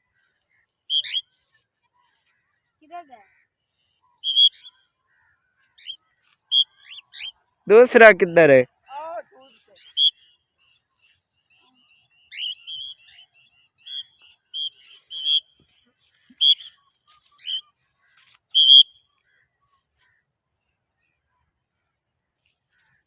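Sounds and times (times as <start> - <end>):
cockatiel whistled calls: 0.9 - 1.2, 4.2 - 4.7, 5.8 - 7.3, 9.8 - 10.3, 12.3 - 13.2, 13.8 - 15.5, 16.3 - 17.7, 18.5 - 19.0.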